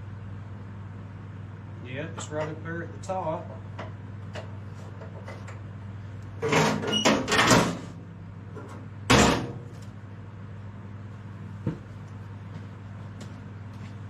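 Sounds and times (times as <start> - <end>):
steady low hum: 0.0 - 14.0
loud metal clank: 9.1 - 9.6.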